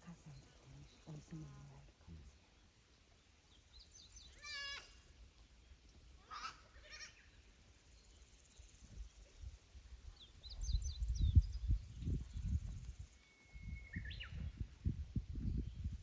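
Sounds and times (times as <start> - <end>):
low rumbling on microphone: 9.0 - 16.0.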